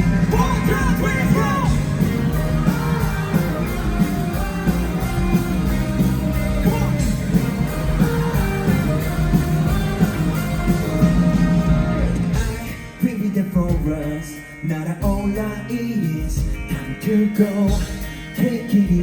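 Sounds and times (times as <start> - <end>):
man singing: 0.0 - 5.8, 6.5 - 7.4, 12.3 - 19.0
live pop-rock band: 0.0 - 19.0.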